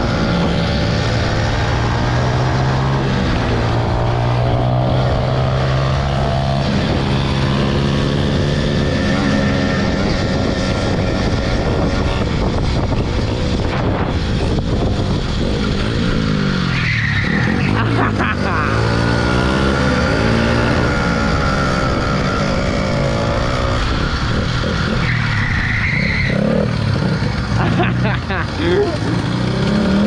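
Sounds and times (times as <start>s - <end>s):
wind noise on microphone: 0.0s - 17.7s, 19.4s - 25.6s.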